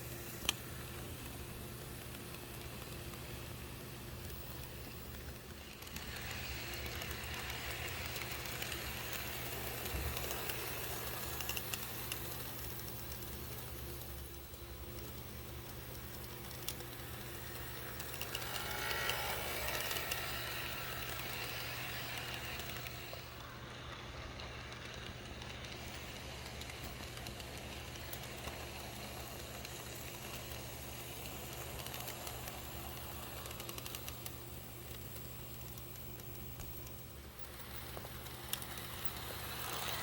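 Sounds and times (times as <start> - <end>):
model train humming: 0.0 - 40.0.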